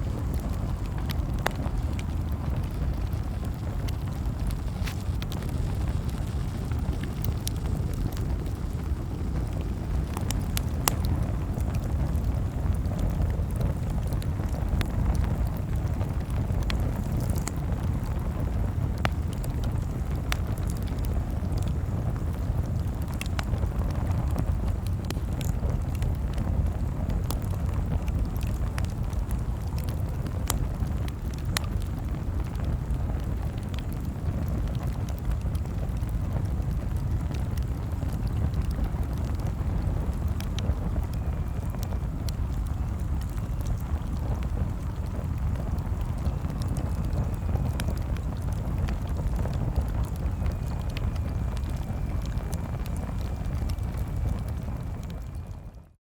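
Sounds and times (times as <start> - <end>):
campfire crackling: 0.0 - 55.9.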